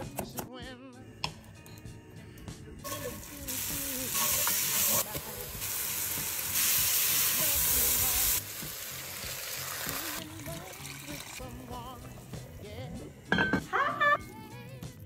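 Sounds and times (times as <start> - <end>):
leeks sizzling in oil: 2.8 - 12.8.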